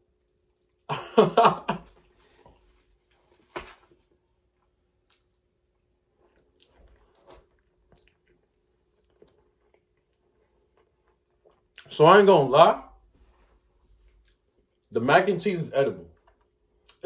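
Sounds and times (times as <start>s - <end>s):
faint chewing with mouth clicks: 0.0s - 0.9s, 2.0s - 3.4s, 4.1s - 11.9s, 13.2s - 15.0s, 16.0s - 17.0s.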